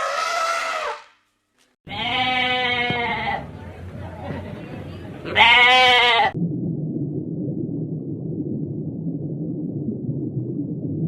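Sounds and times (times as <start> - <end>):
loud bleat: 1.9 - 3.5, 5.3 - 6.4
low background rumble: 2.6 - 11.0.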